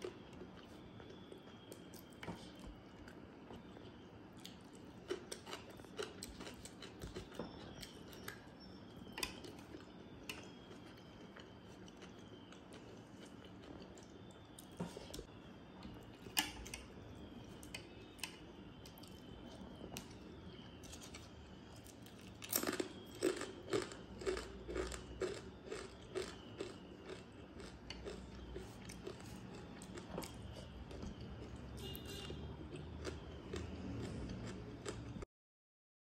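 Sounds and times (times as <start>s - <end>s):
crunching crisp wafer: 18.9s - 32.2s.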